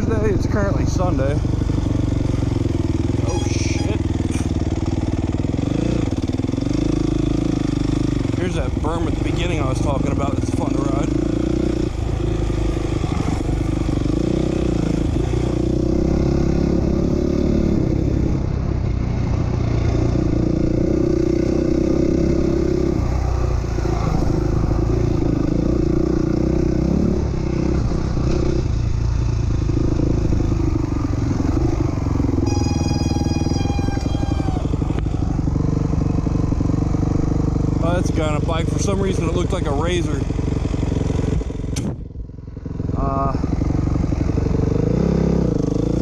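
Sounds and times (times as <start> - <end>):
motocross bike engine revving: 0.0 - 18.4, 19.3 - 41.8, 42.6 - 46.0
brake squeal: 3.1 - 4.6, 32.2 - 35.4.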